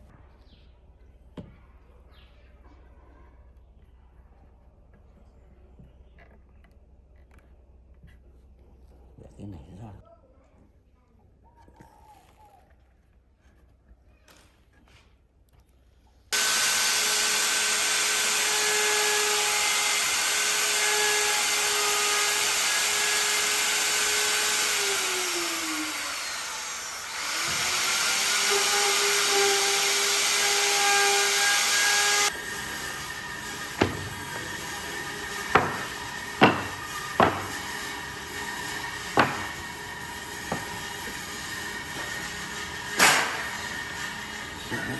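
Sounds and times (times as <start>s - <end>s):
power tool cutting wood: 16.4s - 44.9s
sharp knocks: 33.3s - 39.8s, 40.4s - 40.9s.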